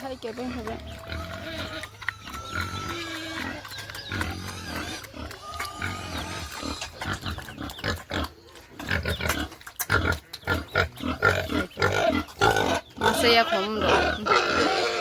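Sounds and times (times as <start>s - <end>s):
pig squeals: 0.0s - 15.0s
pigs grunting: 0.0s - 15.0s.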